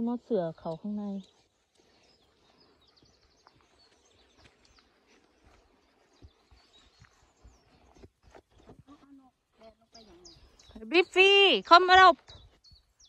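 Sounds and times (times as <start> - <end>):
faint small bird chirps: 6.0 - 11.2.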